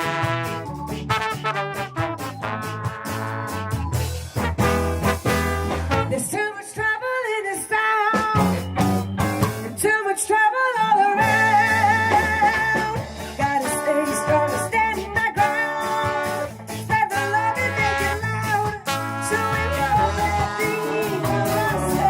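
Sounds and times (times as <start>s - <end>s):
ska band playing live: 0.0s - 22.0s
person singing: 9.7s - 22.0s.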